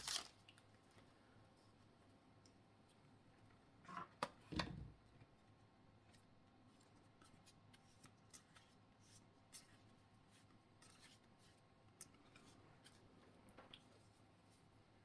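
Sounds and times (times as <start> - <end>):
foil packs rustling: 0.0 - 0.4.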